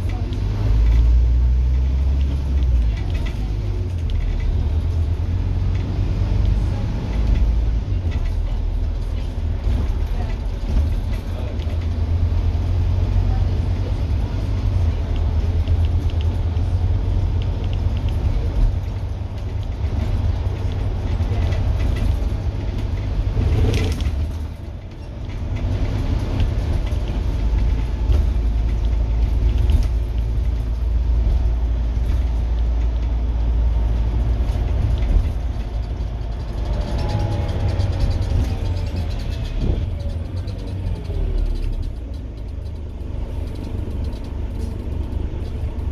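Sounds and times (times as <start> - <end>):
bus diesel engine droning: 0.0 - 45.9.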